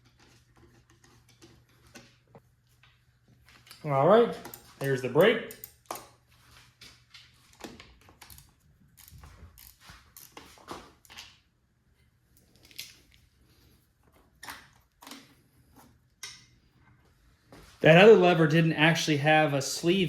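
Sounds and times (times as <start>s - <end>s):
small parts clicking and knocking: 3.5s - 6.2s, 6.8s - 11.5s.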